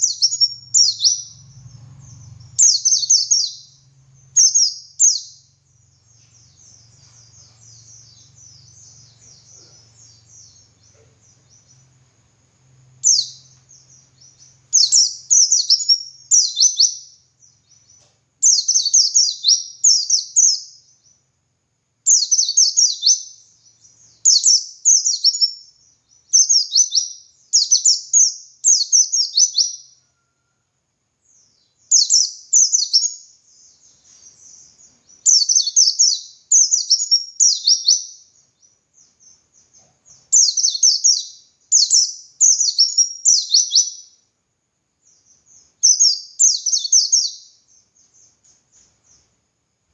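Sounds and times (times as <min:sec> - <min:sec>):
bird singing high-pitched: 0:00.0 - 0:12.0, 0:12.8 - 0:21.2, 0:22.0 - 0:30.4, 0:31.3 - 0:44.3, 0:45.0 - 0:49.3.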